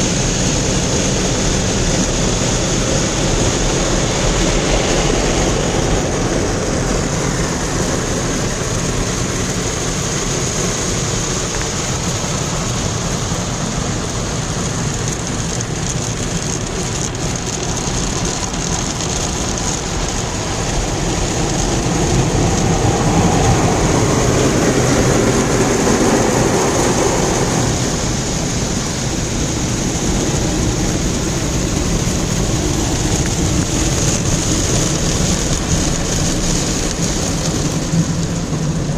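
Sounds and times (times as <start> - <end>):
car wash water spraying: 0.0 - 38.9.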